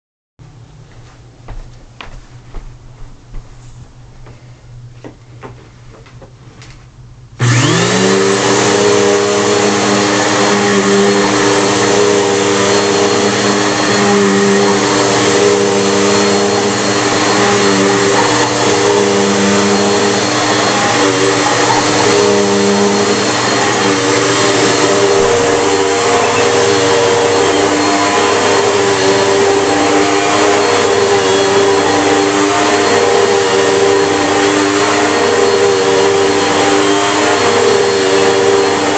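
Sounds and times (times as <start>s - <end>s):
vacuum cleaner motor whining: 7.4s - 38.9s.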